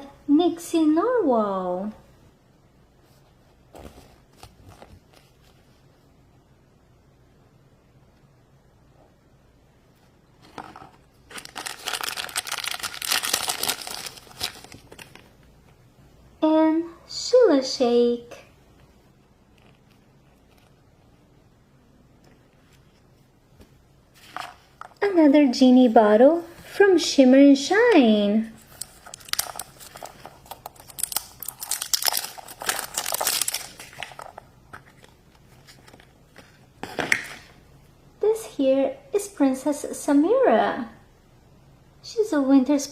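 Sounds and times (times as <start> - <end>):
packaging crinkling and tearing: 10.4 - 15.4, 28.6 - 37.5.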